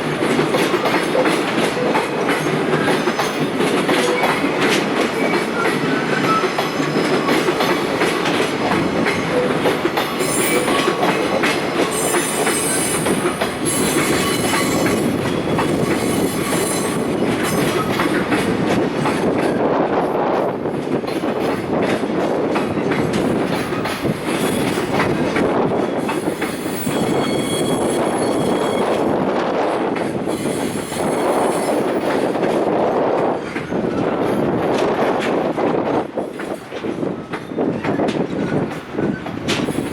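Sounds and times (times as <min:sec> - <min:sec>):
train wheels clacking over rail joints: 0:00.0 - 0:39.9
brake and wheel squeal: 0:26.1 - 0:29.1.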